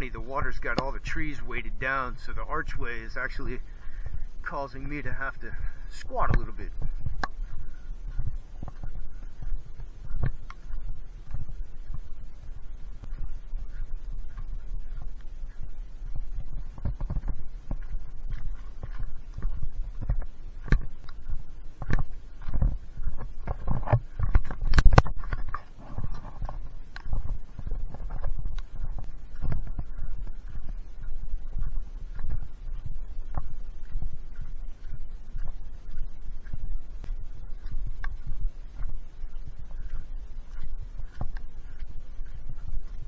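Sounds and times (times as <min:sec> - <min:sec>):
microphone handling bumps: 0:01.8 - 0:15.2, 0:16.0 - 0:33.6.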